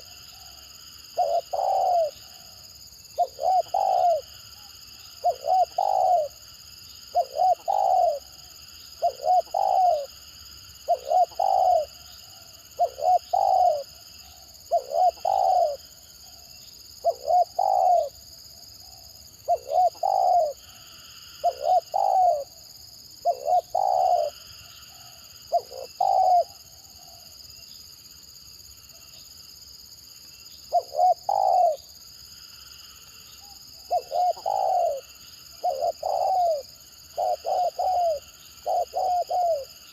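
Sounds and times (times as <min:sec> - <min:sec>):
dove cooing: 0:01.1 - 0:02.6, 0:03.2 - 0:06.4, 0:07.1 - 0:08.4, 0:09.0 - 0:10.2, 0:10.8 - 0:12.1, 0:12.7 - 0:18.2, 0:18.8 - 0:22.6, 0:23.2 - 0:27.2, 0:30.7 - 0:31.8, 0:33.4 - 0:39.9.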